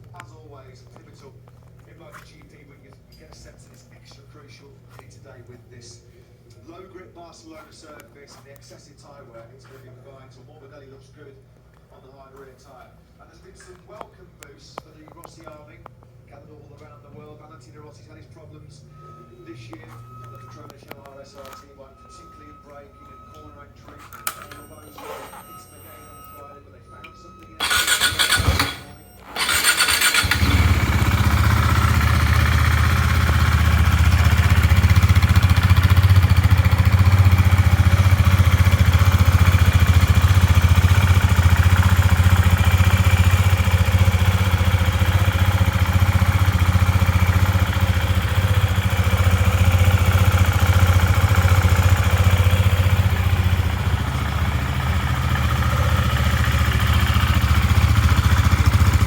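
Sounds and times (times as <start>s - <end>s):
motorcycle engine starting and idling: 24.0s - 25.9s, 27.6s - 59.0s.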